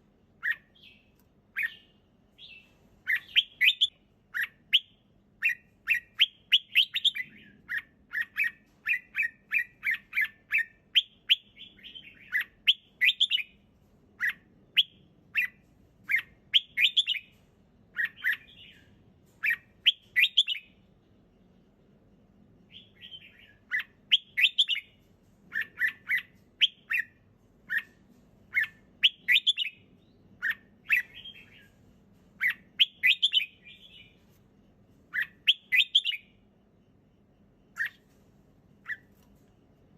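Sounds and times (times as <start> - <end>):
bird singing whistled phrases: 1.6 - 13.5, 14.2 - 17.3, 18.0 - 20.7, 22.7 - 24.9, 28.5 - 29.8, 32.4 - 34.1, 35.2 - 36.3.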